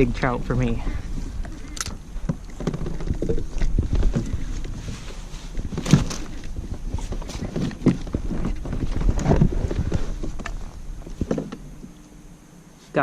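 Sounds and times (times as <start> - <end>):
wind on the microphone: 0.0 - 12.0
knocks of handling in a kayak: 2.2 - 11.9.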